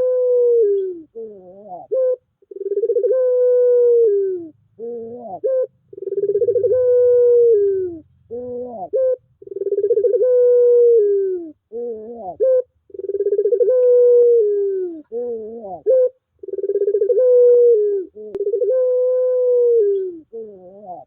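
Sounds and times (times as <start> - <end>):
dove cooing: 0.0 - 21.0.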